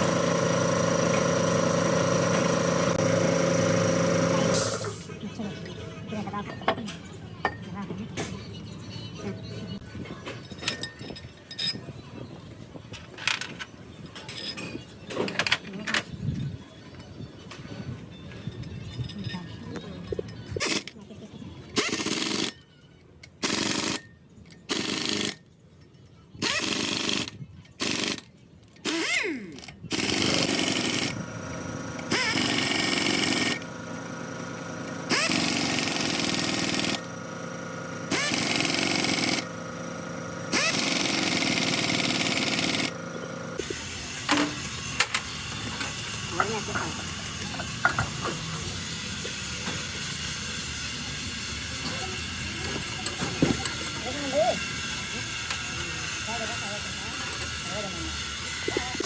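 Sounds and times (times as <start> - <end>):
power tool rattling: 0.0 - 5.0, 18.3 - 21.0, 21.7 - 22.6, 23.3 - 25.4, 26.4 - 51.0, 51.6 - 59.0.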